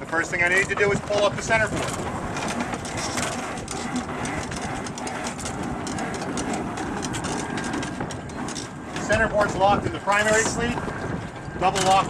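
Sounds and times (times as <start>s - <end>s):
rope clicking through cleats: 0.5s - 9.2s.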